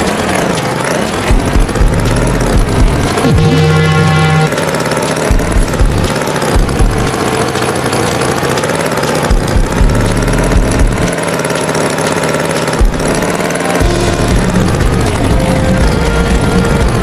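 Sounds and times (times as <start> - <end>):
tractor engine rumbling: 0.0 - 17.0
heavy low thumps: 1.3 - 4.5, 5.3 - 7.2, 9.3 - 11.1, 12.8 - 17.0.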